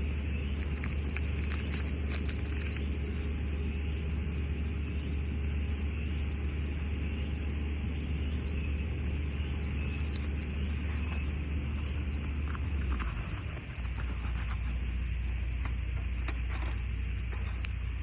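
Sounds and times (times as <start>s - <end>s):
insect trilling: 0.0s - 18.0s.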